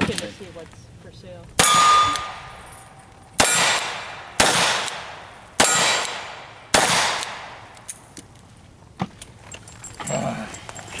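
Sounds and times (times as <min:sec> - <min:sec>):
steel targets clanging: 0:01.6 - 0:06.2
gunshots with ringing: 0:01.6 - 0:07.8.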